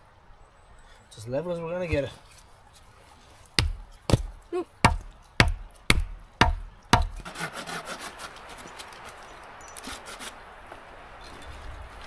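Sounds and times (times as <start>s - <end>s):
rough scraping on wood: 1.9s - 5.2s, 6.9s - 10.4s
sharp knocks on wood: 3.6s - 7.2s.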